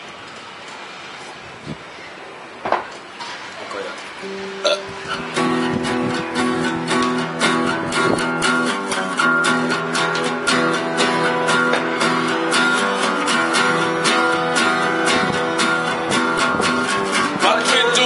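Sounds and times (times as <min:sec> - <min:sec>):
strummed guitar chords: 0:04.2 - 0:18.0.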